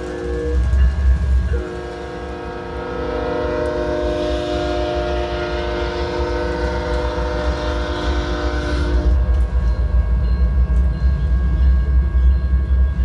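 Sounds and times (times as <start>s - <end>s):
train horn chord: 0.0s - 9.8s.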